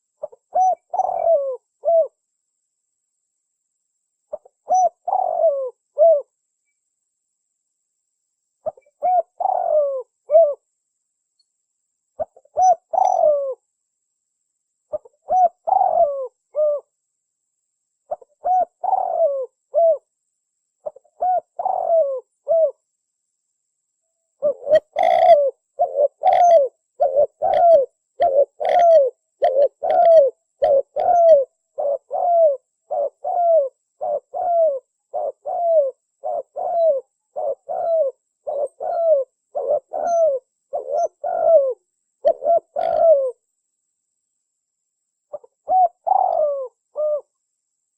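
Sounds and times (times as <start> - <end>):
dove cooing: 0.0 - 2.2, 4.3 - 6.3, 8.6 - 10.6, 12.2 - 13.6, 14.9 - 16.9, 18.1 - 20.1, 20.8 - 22.8, 24.4 - 43.4, 45.3 - 47.4.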